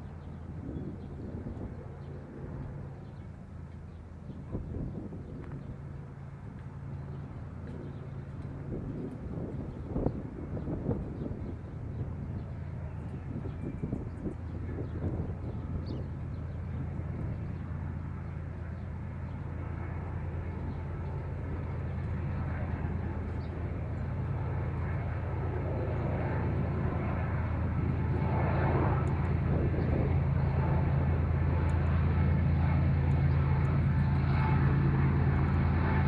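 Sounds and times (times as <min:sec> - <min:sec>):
train engine drone: 0:10.5 - 0:36.0.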